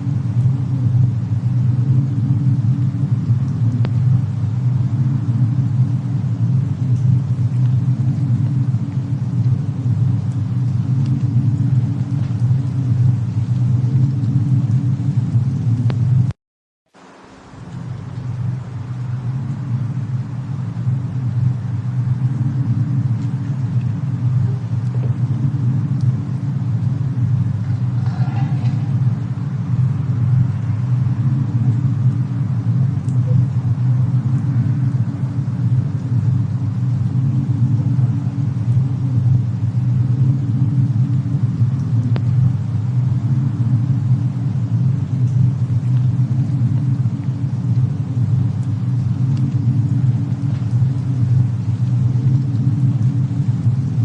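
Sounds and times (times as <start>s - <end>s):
loud low rumble: 0.0s - 16.4s, 17.0s - 54.0s
faint fire crackles: 0.0s - 54.0s.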